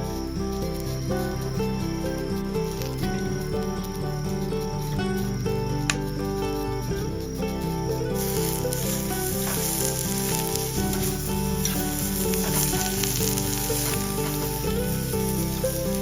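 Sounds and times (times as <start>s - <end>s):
background music: 0.0s - 16.0s
food sizzling in a pan: 8.2s - 16.0s.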